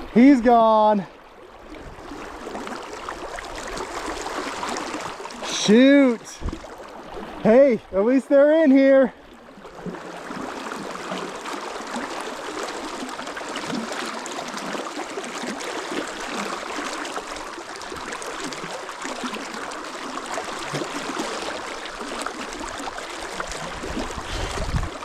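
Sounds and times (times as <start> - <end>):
river water flowing: 0.0 - 25.0.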